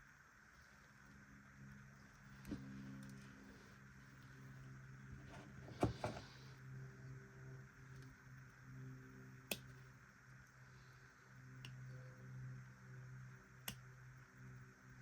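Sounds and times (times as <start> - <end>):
faint low hum: 0.0 - 15.0
small sharp clicks: 9.4 - 9.8, 13.6 - 13.9.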